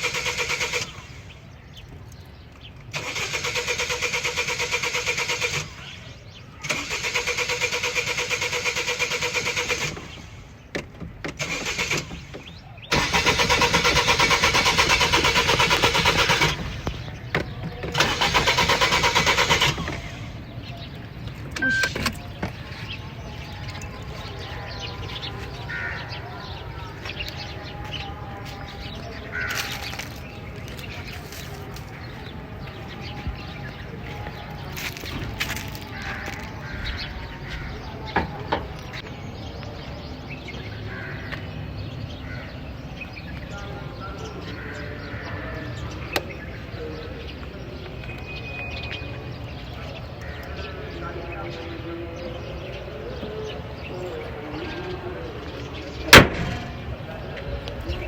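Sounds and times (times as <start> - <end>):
car starter cranking engine: 0.0 - 1.6, 2.9 - 6.0, 6.6 - 24.2, 28.5 - 38.9.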